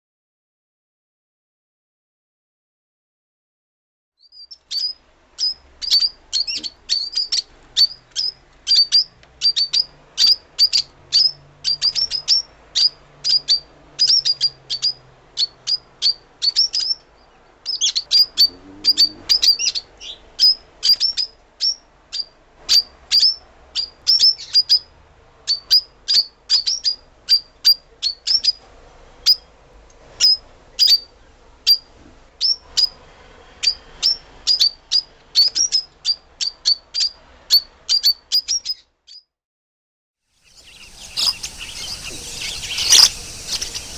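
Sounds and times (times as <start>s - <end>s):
lovebird shrill chirps: 40.4s - 43.9s.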